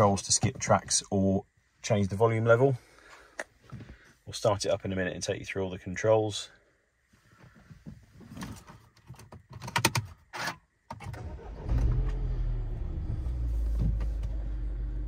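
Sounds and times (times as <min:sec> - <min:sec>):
car engine starting and idling: 0:10.9 - 0:15.0.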